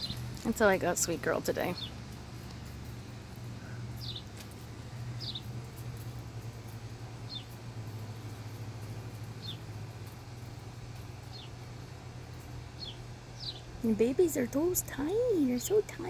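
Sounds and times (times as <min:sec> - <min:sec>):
steady low hum: 0:00.0 - 0:16.0
bird chirping: 0:03.6 - 0:04.4, 0:05.2 - 0:05.5, 0:07.2 - 0:07.6, 0:09.4 - 0:09.7, 0:11.2 - 0:11.6, 0:12.8 - 0:13.7.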